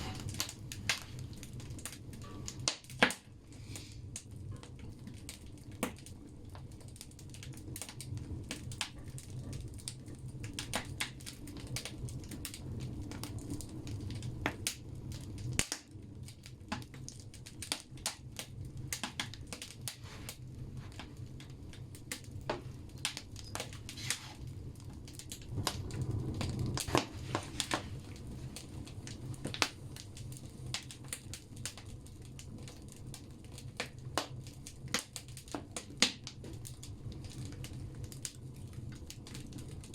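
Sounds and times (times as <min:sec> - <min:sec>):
firewood crackling and popping: 0:00.0 - 0:39.9
low rumble of fire draught: 0:00.0 - 0:39.9.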